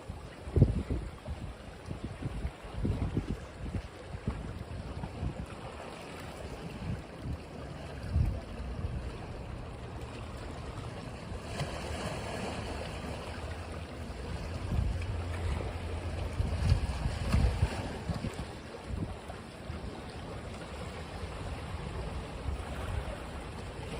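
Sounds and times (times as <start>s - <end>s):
sea waves washing on beach: 0.0s - 23.9s
wind buffeting microphone: 0.1s - 5.8s, 6.4s - 10.8s, 14.1s - 20.1s.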